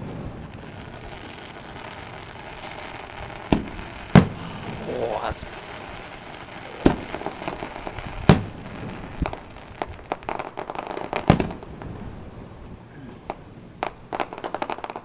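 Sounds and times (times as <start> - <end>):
fireworks bangs: 0.0 - 15.0
fireworks crackling pops: 0.0 - 15.0.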